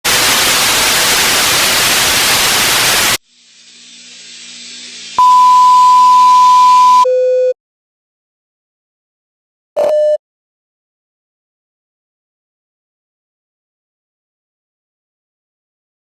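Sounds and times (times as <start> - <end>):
television static hiss: 0.1 - 3.2
high test tone beep: 5.2 - 7.6, 9.8 - 10.2
short lower beep: 5.2 - 7.6.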